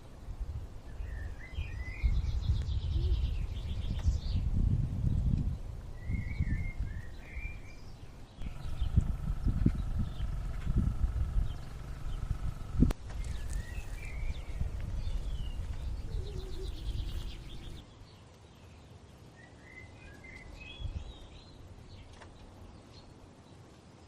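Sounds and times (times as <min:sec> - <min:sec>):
small birds chirping: 0:00.0 - 0:23.8
low rumbling noise: 0:08.0 - 0:17.8.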